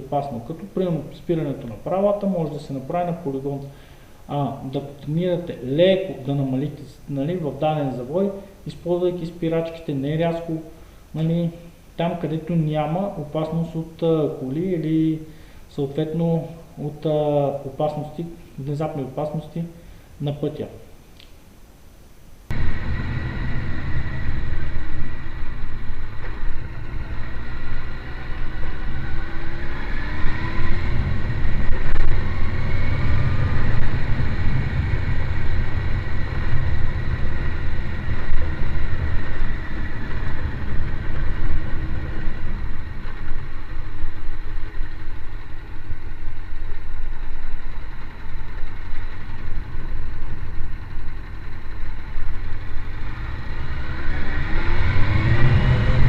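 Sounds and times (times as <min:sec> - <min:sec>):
motorcycle engine running: 0:30.8 - 0:54.4.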